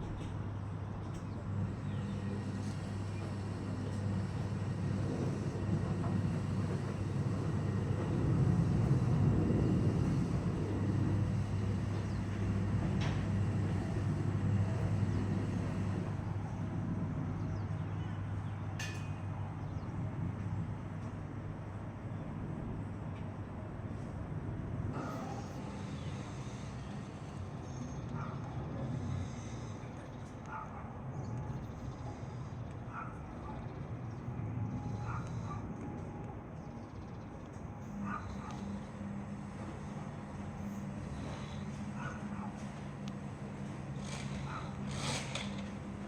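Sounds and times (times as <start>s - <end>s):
vehicle humming: 0.0s - 18.7s, 31.3s - 46.0s.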